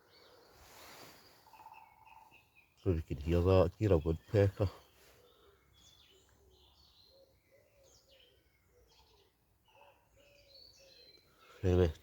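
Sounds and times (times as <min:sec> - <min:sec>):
small birds chirping: 0:00.0 - 0:12.0
low cooing bird call: 0:04.8 - 0:11.6.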